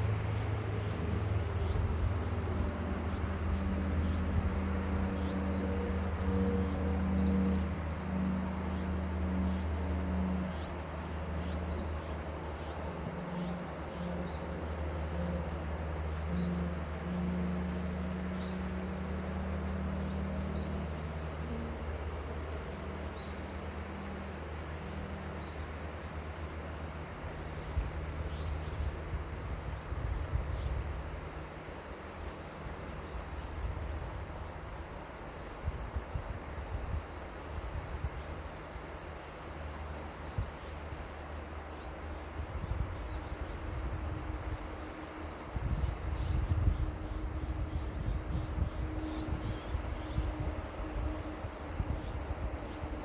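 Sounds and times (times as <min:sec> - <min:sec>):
flowing river water: 0:00.0 - 0:53.0
high chirps of birds or insects: 0:00.0 - 0:53.0
low engine hum: 0:00.0 - 0:53.0.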